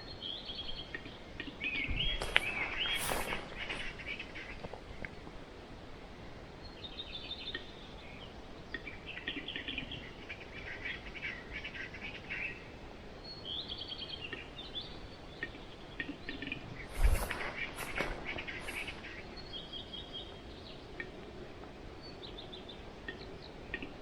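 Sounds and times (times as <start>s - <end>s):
birds chirping rapidly: 0.3s - 5.3s, 14.0s - 21.0s.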